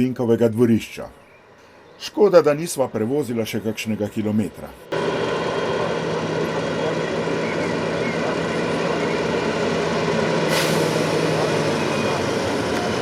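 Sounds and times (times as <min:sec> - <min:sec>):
diesel engine running: 0:04.8 - 0:13.0
hiss: 0:10.5 - 0:11.7.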